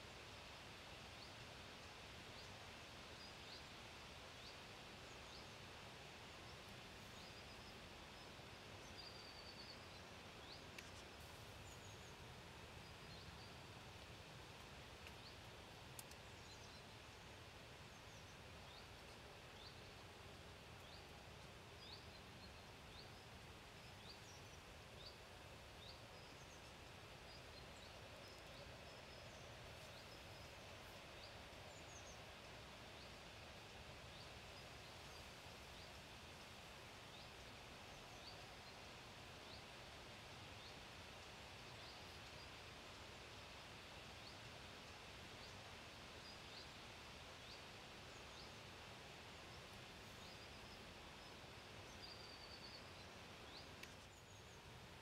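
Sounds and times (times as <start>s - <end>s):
faint steady hiss: 0.0s - 55.0s
faint clicks: 10.7s - 11.1s, 14.0s - 16.6s, 53.8s - 54.2s.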